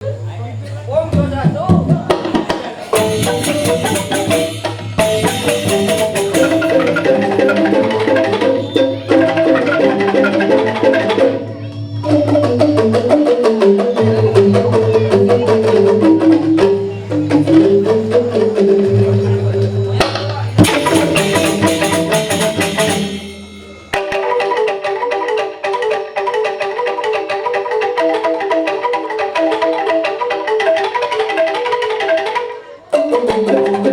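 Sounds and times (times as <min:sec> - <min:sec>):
bamboo xylophones: 0:00.0 - 0:33.9
drums and percussion: 0:00.1 - 0:33.9.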